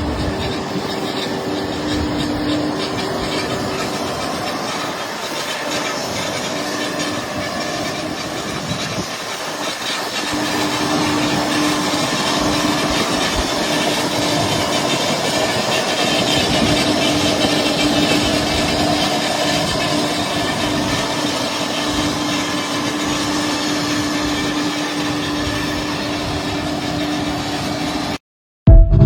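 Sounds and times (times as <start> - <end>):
held hums: 0.0 - 7.6.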